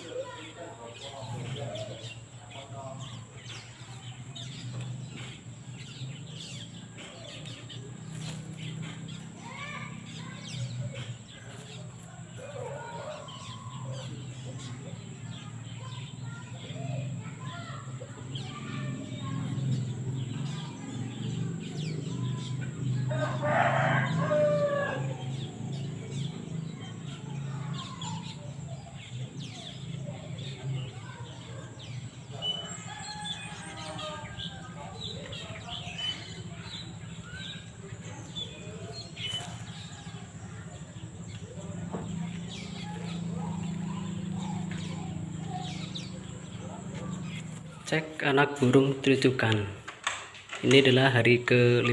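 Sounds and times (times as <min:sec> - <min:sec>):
birds chirping: 0:00.0 - 0:51.9
rooster crowing: 0:23.1 - 0:25.3, 0:32.5 - 0:35.0.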